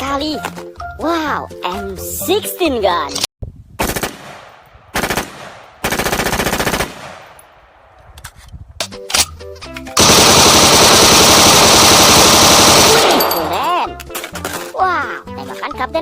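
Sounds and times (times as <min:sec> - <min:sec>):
automatic rifle fire: 0:03.8 - 0:07.5, 0:10.0 - 0:13.5.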